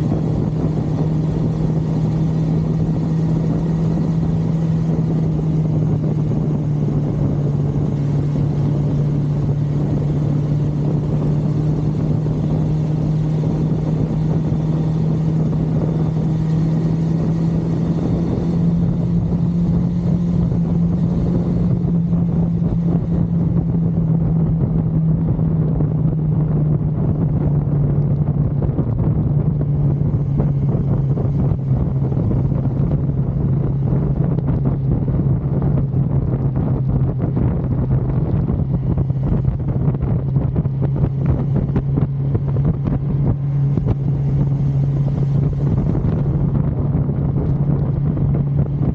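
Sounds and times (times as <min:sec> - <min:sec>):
motorcycle engine cruising: 0:00.0 - 0:48.9
wind noise: 0:00.0 - 0:48.9.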